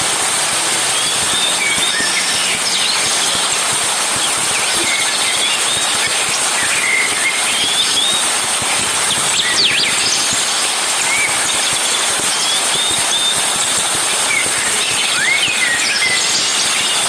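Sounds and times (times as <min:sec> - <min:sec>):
high-pitched buzz: 0:00.0 - 0:17.0
steady hiss: 0:00.0 - 0:17.0
birds chirping: 0:00.2 - 0:13.5.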